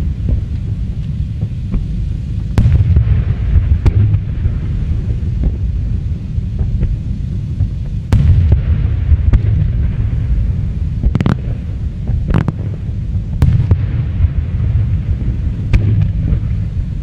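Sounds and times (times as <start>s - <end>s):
fireworks rumble: 0.0s - 17.0s
fireworks sharp bangs: 0.0s - 17.0s
fireworks light cracks: 11.0s - 13.8s.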